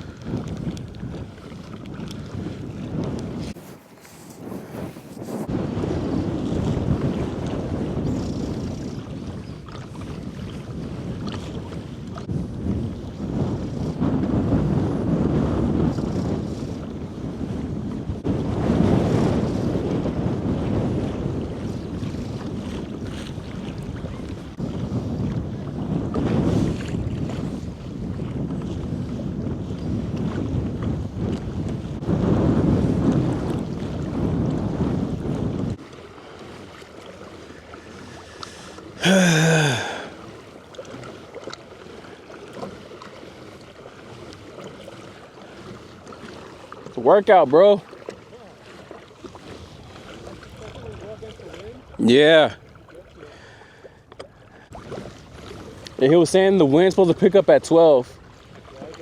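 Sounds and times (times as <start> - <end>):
water chop sloshing against kayak: 0.0 - 59.0
wind buffeting microphone: 0.0 - 59.0
man groaning exhale: 39.0 - 40.2.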